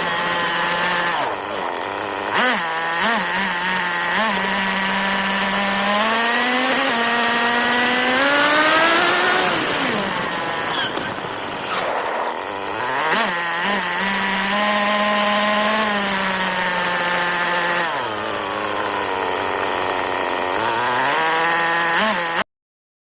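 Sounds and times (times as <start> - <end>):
buggy engine revving: 0.0 - 22.4.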